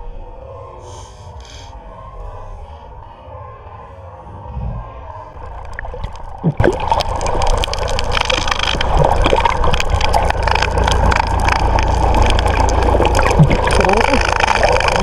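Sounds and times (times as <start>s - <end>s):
water splashing against boat: 5.4s - 15.0s.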